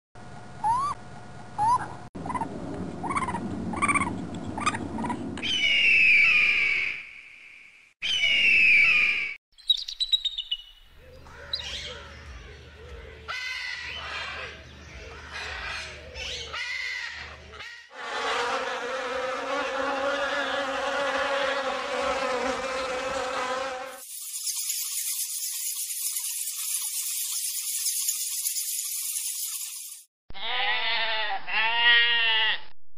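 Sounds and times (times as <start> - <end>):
macaws squawking: 1.6 - 6.4, 13.3 - 22.1
eagle chirps: 9.6 - 12.0
insect buzz: 20.8 - 30.1.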